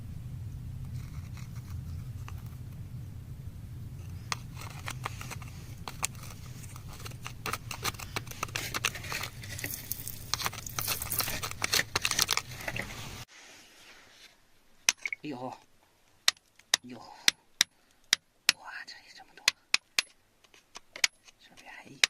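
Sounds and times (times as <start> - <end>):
steady low hum: 0.0 - 13.3
metal tweezers clicking on stones: 7.2 - 12.4.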